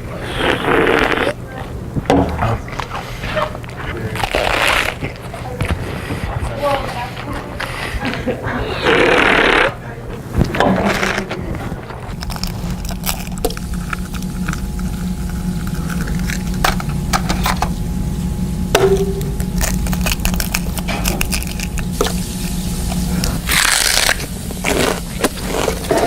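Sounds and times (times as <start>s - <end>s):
crunchy snack being eaten: 4.0s - 5.5s, 12.1s - 17.0s, 19.3s - 26.0s
low hum: 10.2s - 26.0s.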